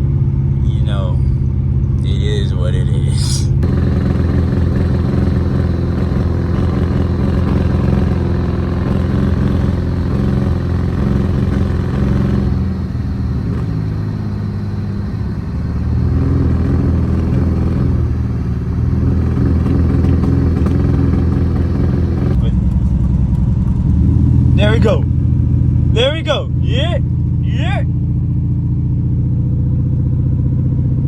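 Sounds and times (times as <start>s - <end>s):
car engine running: 0.0s - 31.0s
road noise: 0.0s - 31.0s
man talking: 0.6s - 1.4s, 2.0s - 3.6s, 24.6s - 25.1s, 25.9s - 27.9s.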